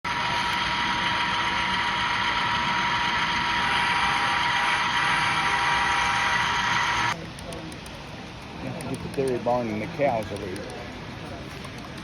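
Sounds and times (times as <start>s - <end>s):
high-pitched motor whine: 0.1s - 7.2s
model train running: 0.1s - 7.2s.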